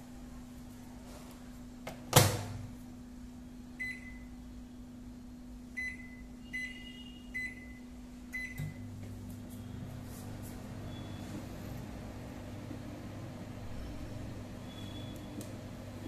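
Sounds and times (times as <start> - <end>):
microwave humming: 0.0 - 16.0
keypad beeps: 8.4 - 8.8.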